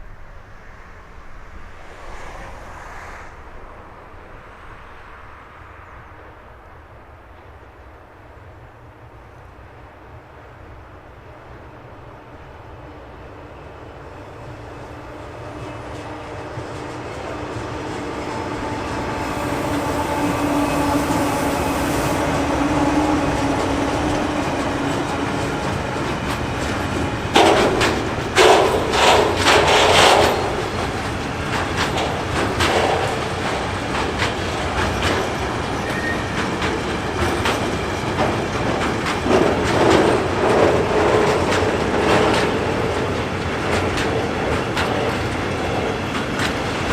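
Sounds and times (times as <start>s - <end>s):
train passing rumble: 0.0s - 46.9s
wheel clatter over rail joints: 14.4s - 46.9s.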